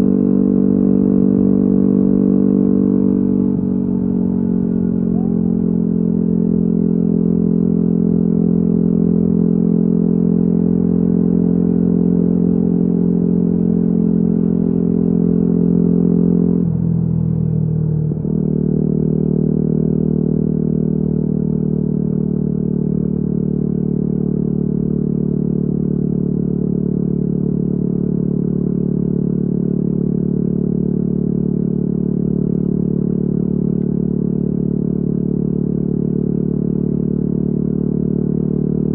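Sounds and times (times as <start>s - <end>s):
motorcycle engine cruising: 0.0s - 9.4s.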